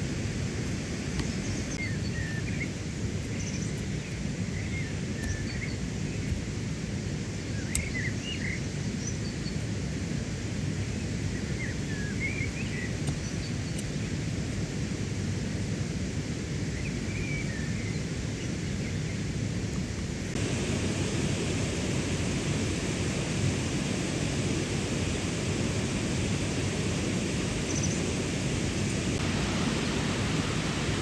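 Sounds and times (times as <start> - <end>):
small birds chirping: 0.6 - 9.8, 10.9 - 15.4, 27.5 - 29.2.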